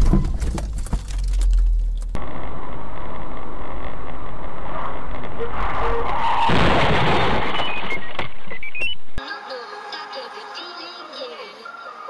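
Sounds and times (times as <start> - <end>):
car road noise: 0.0 - 10.4.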